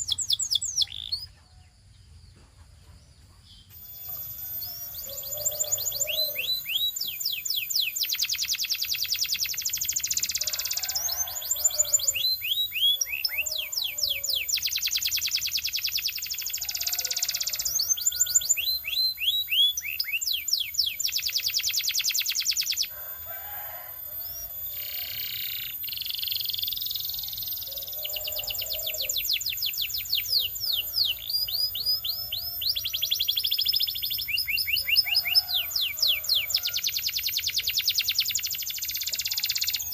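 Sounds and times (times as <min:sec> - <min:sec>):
canary singing rapid trills: 0:00.0 - 0:01.4, 0:03.6 - 0:39.9.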